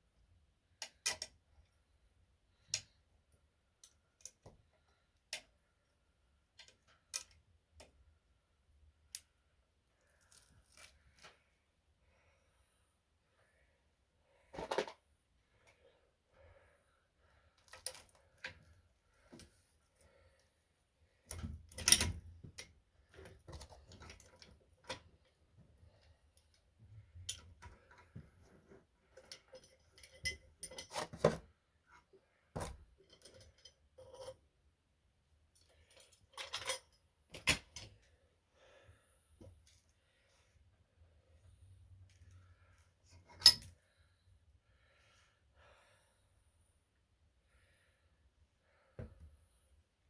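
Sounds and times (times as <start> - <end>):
metal tools clinking and rattling: 29.2 - 31.2, 35.8 - 37.9, 43.3 - 43.7.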